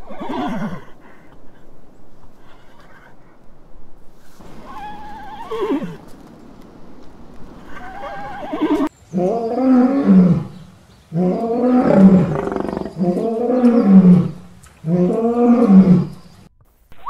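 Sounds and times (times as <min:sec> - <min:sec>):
horse whinny: 0:00.0 - 0:00.9, 0:04.6 - 0:06.0, 0:07.7 - 0:10.4, 0:11.2 - 0:16.2
lion roaring: 0:07.6 - 0:16.3.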